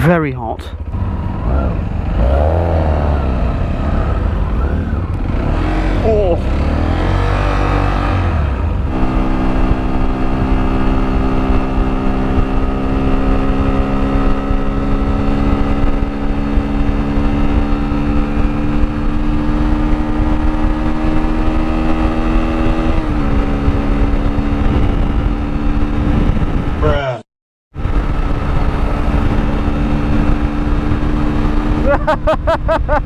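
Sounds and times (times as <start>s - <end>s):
motorcycle engine running: 0.0s - 27.0s, 27.7s - 33.0s
wind rumble on microphone: 0.8s - 27.0s, 27.7s - 33.0s.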